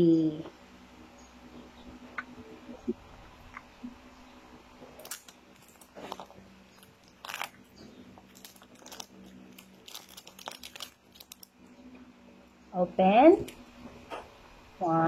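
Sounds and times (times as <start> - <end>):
faint steady hum: 0.0 - 15.0
packaging crinkling and tearing: 5.0 - 11.6.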